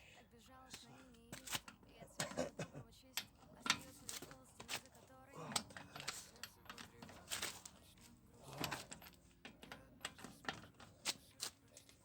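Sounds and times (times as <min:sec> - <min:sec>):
tools and metal parts clicking: 0:03.2 - 0:12.0.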